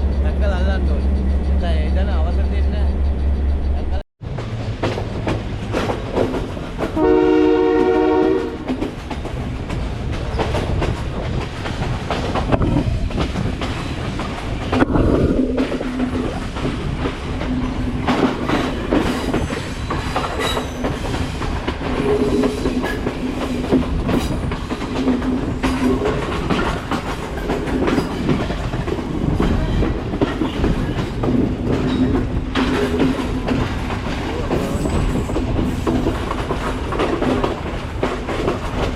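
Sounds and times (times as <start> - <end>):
train wheels clattering on rails: 0.0 - 38.9
locomotive horn: 7.0 - 8.7.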